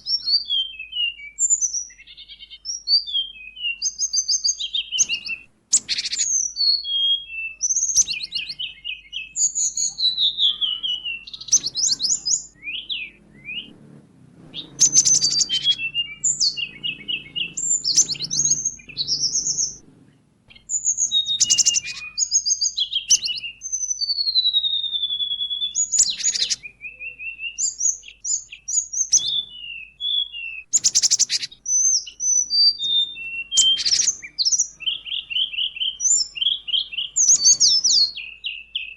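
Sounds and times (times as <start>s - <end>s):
songbirds singing: 0.0s - 38.9s
harsh raspy bird chattering: 9.4s - 13.7s, 14.5s - 19.8s, 20.5s - 23.5s, 24.8s - 29.5s, 30.8s - 38.1s.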